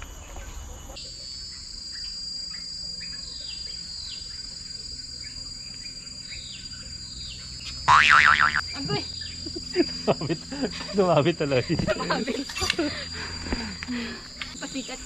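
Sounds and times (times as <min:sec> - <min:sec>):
crickets shrilling: 0:00.9 - 0:15.0.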